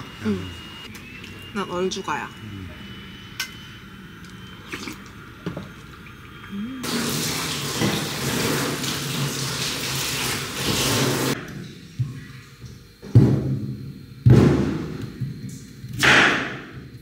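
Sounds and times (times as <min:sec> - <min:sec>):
tap water running into sink: 0:06.9 - 0:12.8.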